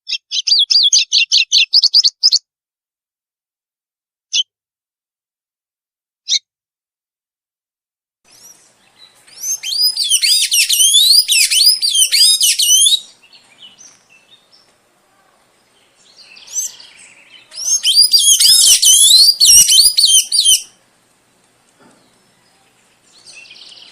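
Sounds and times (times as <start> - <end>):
songbird whistling high notes: 9.3 - 13.1, 17.6 - 20.8.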